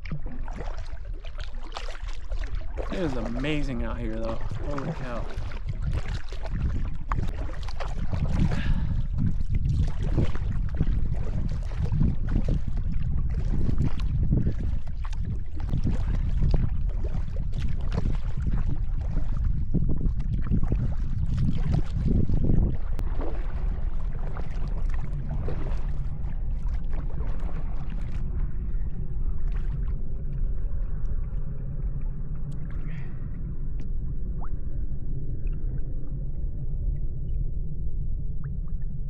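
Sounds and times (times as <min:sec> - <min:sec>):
paddle splashing in water: 0:00.0 - 0:28.4
water dripping and gurgling: 0:00.0 - 0:39.0
wind rumble on microphone: 0:00.0 - 0:39.0.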